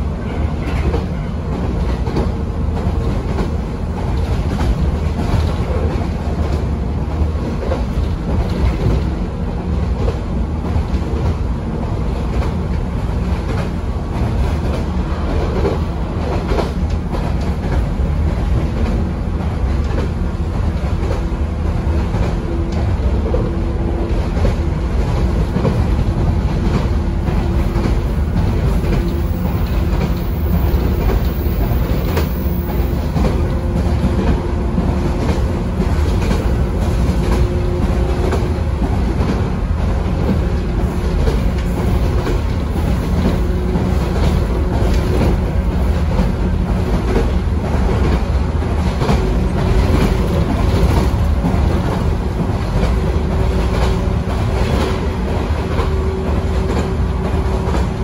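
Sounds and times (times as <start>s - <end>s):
train running rumble: 0.0s - 58.0s
wheels clacking over rail joints: 0.2s - 58.0s.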